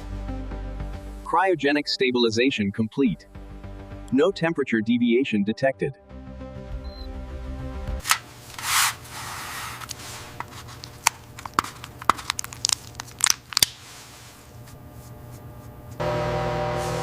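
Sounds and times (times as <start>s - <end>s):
rustling tearing burst: 8.0s - 14.0s
sharp crackles and snaps: 9.8s - 13.9s.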